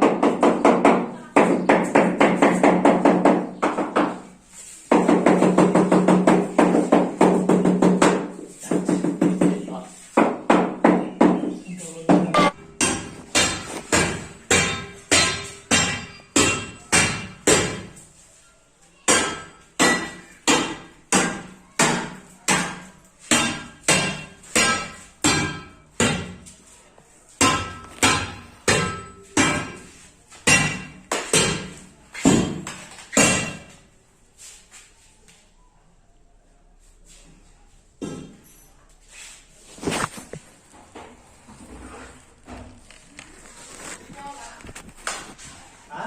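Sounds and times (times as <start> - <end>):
hammer chipping at flooring: 4.9 - 18.0, 27.4 - 33.8.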